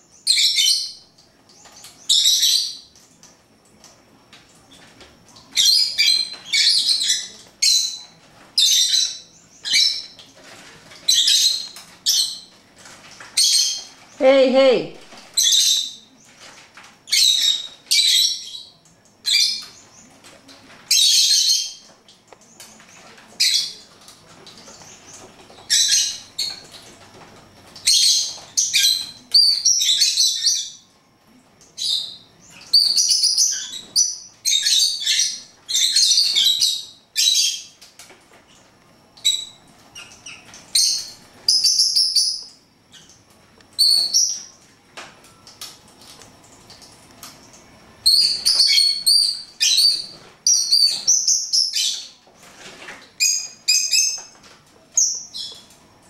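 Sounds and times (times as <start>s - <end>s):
pet birds chirping: 0.0s - 3.0s, 5.4s - 10.4s, 11.1s - 23.9s, 24.5s - 30.9s, 31.6s - 37.8s, 39.2s - 44.6s, 48.0s - 52.2s, 53.2s - 54.4s.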